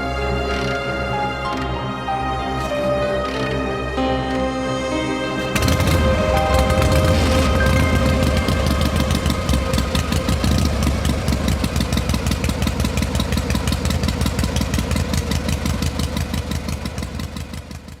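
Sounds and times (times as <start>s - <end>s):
motorcycle engine idling: 5.6s - 18.0s.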